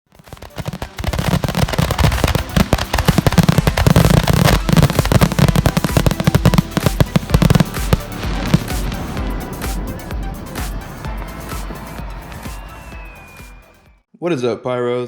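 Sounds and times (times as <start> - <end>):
fireworks crackling reports: 0.1 - 13.7
deep rumble: 1.6 - 13.1.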